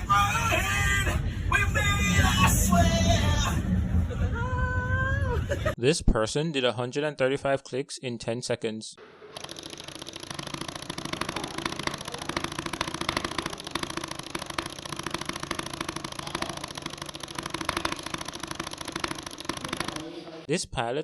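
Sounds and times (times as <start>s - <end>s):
fast mouse button clicking: 9.4s - 20.0s.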